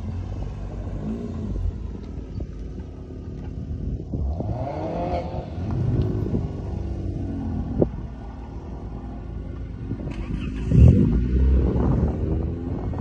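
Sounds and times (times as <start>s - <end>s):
car engine revving: 4.1s - 9.2s, 9.8s - 13.0s.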